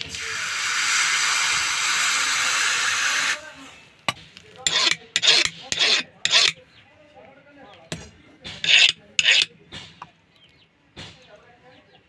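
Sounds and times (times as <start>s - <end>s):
chisel rasping on sharpening stone: 4.6s - 6.6s, 8.6s - 9.5s.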